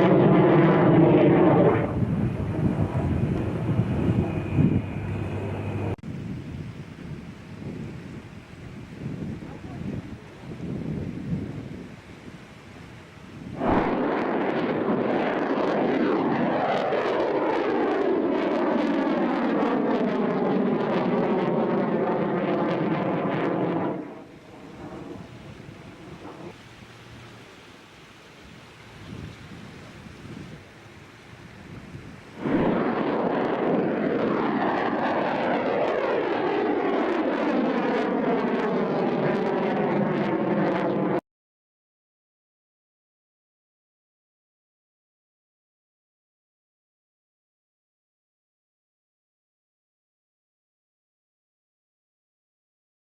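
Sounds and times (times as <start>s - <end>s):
loud rocket roar: 0.0s - 6.0s, 13.6s - 26.6s, 32.4s - 41.2s
rocket booster blast: 0.0s - 6.0s, 13.6s - 26.5s, 32.4s - 41.2s.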